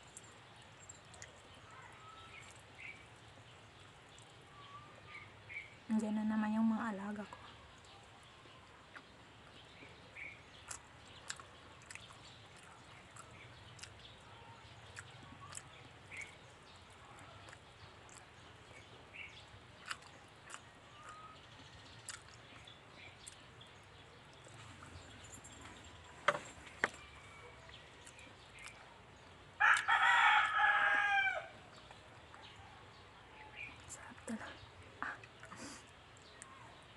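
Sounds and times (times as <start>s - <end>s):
small chirps and ticks: 0.0s - 30.6s, 31.6s - 36.9s
rooster crowing: 29.6s - 31.6s.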